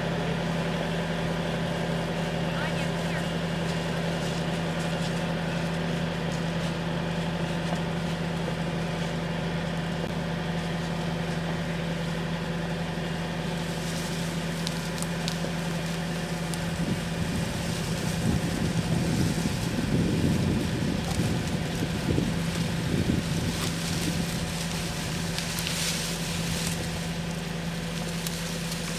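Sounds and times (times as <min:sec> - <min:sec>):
tractor engine humming: 0:00.0 - 0:28.9
rough low rumble: 0:14.6 - 0:28.9.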